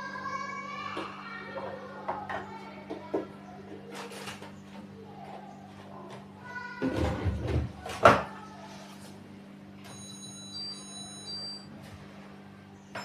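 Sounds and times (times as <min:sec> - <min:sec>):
electronic beeps: 0:09.9 - 0:11.7.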